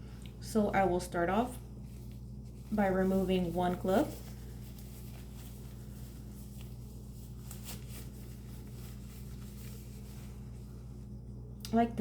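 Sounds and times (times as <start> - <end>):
low room hum: 0.0 - 12.0
glove rustling and clicking: 3.7 - 10.4.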